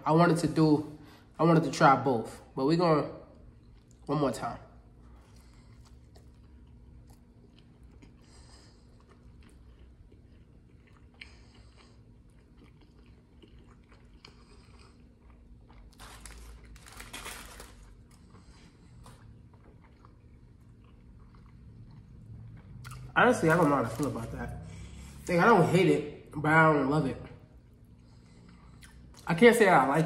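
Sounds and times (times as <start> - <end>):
person chewing: 4.9 - 17.0, 17.6 - 25.3, 27.6 - 29.3.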